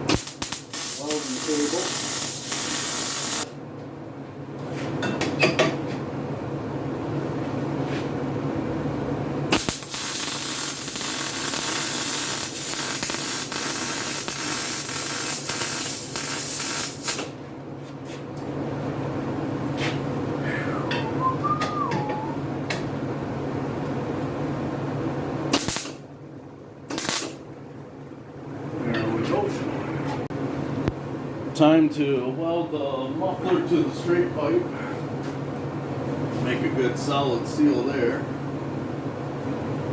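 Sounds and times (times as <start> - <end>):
welding arc hissing and crackling: 0.0 - 3.5, 9.5 - 17.3, 25.5 - 26.0, 26.9 - 27.4.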